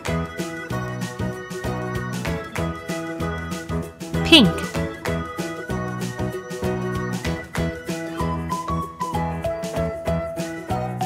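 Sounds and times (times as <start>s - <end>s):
upbeat keyboard music: 4.3s - 4.7s.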